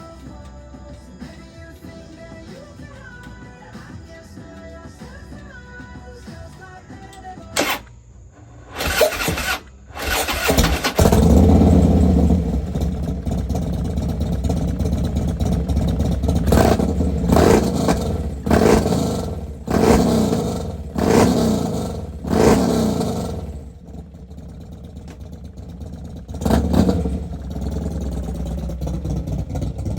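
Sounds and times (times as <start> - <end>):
motorcycle idling with throttle blips: 0.0 - 29.9
motorcycle engine starting: 7.1 - 29.9.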